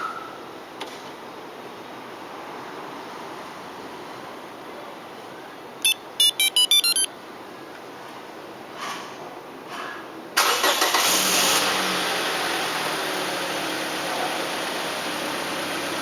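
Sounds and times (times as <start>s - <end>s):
remote beeping: 5.8s - 7.1s
short electronic tones: 5.8s - 7.1s.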